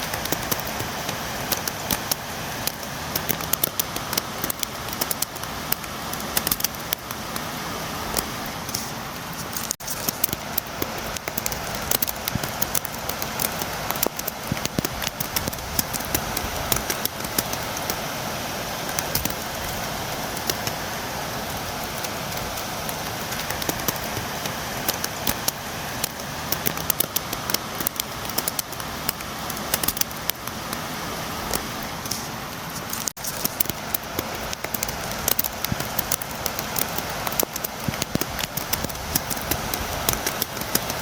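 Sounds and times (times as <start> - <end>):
rain falling: 0.0 - 41.0
raindrops tapping on window: 9.6 - 18.1, 18.8 - 30.9, 31.5 - 41.0.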